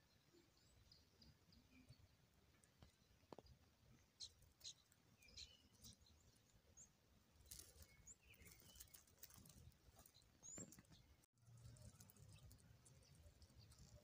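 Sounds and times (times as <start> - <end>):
faint bird chirps: 2.8 - 14.0.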